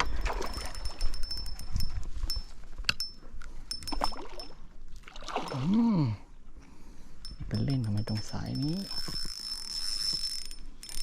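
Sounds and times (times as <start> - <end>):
water splashing and trickling: 0.0 - 2.8, 3.6 - 6.3.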